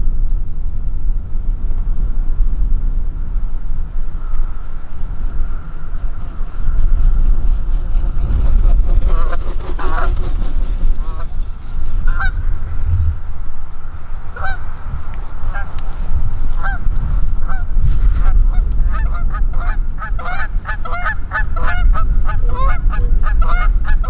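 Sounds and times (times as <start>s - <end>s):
steady low rumble: 0.0s - 24.0s
geese honking: 9.0s - 10.3s, 10.9s - 12.8s, 14.1s - 16.8s, 17.4s - 24.0s.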